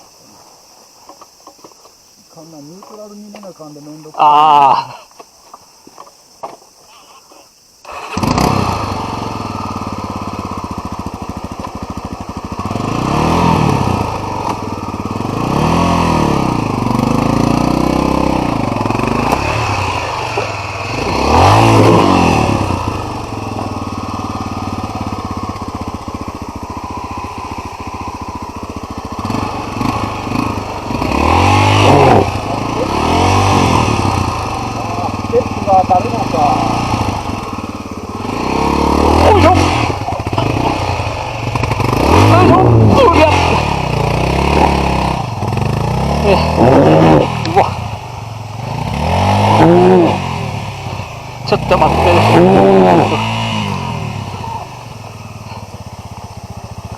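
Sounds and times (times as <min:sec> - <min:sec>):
electric starter cranking: 0:07.8 - 0:09.0
motorcycle engine revving: 0:07.8 - 0:56.9.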